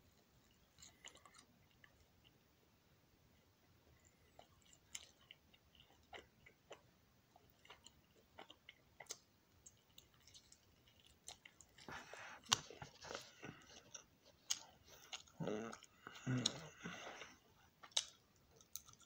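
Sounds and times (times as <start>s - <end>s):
person chewing with mouth clicks: 4.1s - 19.0s.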